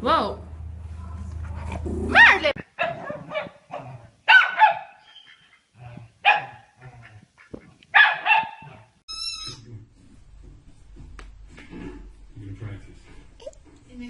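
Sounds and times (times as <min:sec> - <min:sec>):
dog barking: 0:02.1 - 0:05.0, 0:06.2 - 0:06.7, 0:07.9 - 0:08.9.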